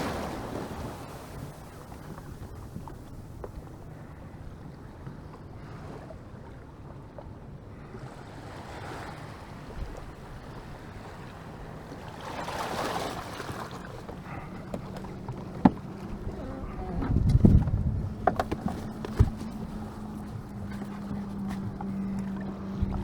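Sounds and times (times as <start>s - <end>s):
water washing against boat hull: 0.0s - 7.9s, 8.6s - 23.0s
wind on microphone: 8.3s - 23.0s.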